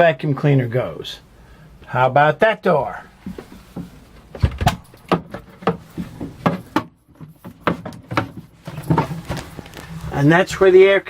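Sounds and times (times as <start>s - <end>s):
wooden cabinet door opening: 3.3s - 10.0s.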